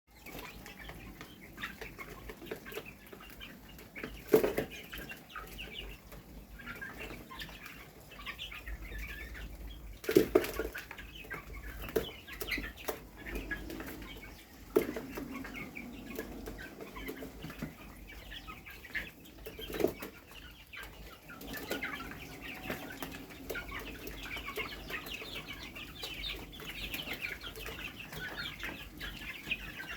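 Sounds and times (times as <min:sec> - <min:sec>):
chickens clucking: 0:00.1 - 0:29.9.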